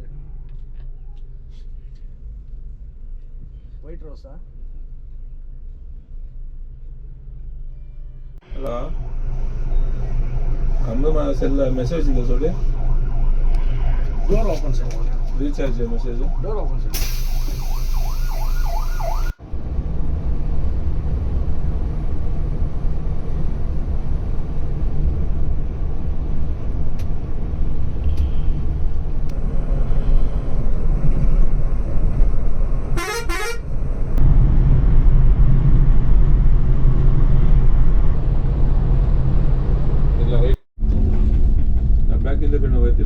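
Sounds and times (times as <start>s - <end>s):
bright sound cutting off: 16.9s - 19.2s
vehicle horn: 33.0s - 33.7s.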